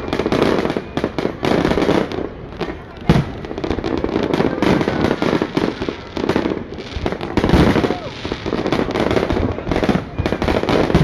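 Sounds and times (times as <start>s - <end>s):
fireworks crackling and popping: 0.0s - 11.0s
fireworks heavy bang: 0.0s - 11.0s.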